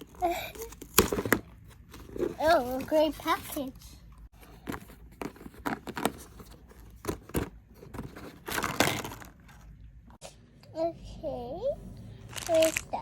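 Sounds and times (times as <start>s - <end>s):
packaging crinkling and rustling: 12.3s - 13.0s.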